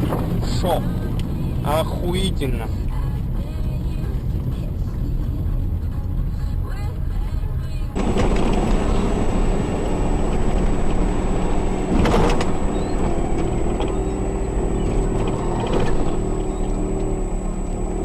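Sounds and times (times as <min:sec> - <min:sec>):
car engine and road noise: 0:00.0 - 0:18.0
loud clatter: 0:08.0 - 0:16.8.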